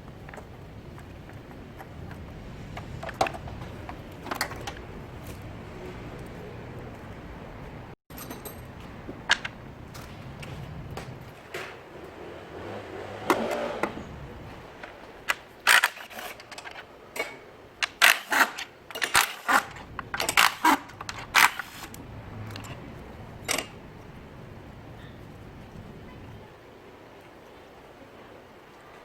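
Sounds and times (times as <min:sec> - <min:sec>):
metallic clicks of hand tools: 0:14.8 - 0:22.8.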